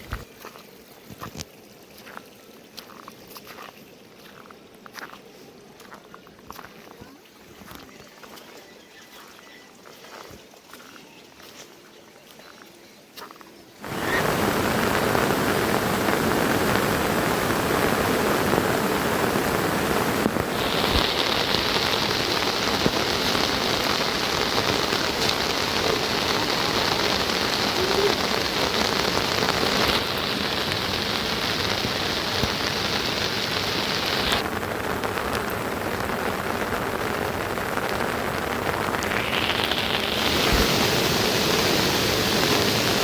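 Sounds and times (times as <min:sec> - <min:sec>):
heavy rain falling: 0:13.8 - 0:43.0
high steady hiss: 0:13.8 - 0:43.0.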